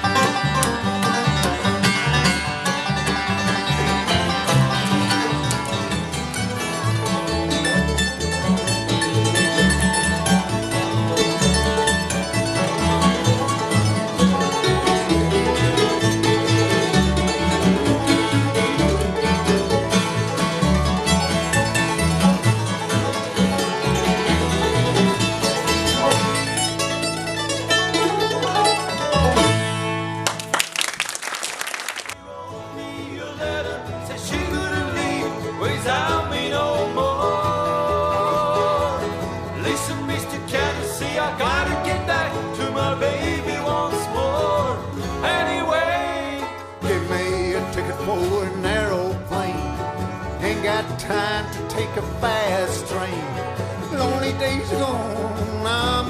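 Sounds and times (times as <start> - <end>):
banjo picking: 0.0 - 31.0, 32.2 - 56.0
bluegrass band playing: 0.0 - 56.0.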